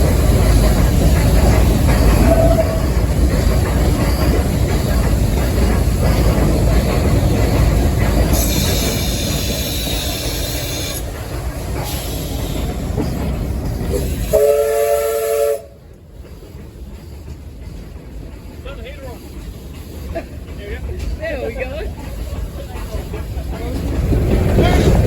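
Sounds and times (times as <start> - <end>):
steam locomotive clatter: 0.0 - 25.0
locomotive whistle blast: 2.2 - 2.8, 14.2 - 15.7.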